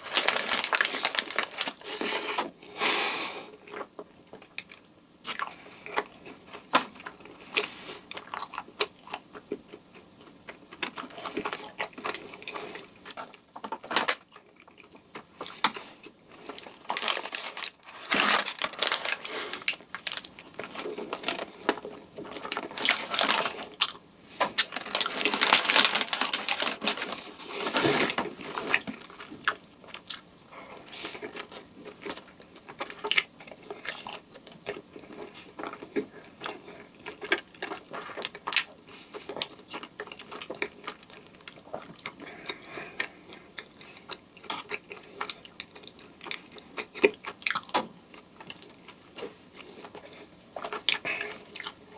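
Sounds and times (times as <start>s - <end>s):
wet chewing and smacking: 3.7s - 13.5s, 30.9s - 51.9s.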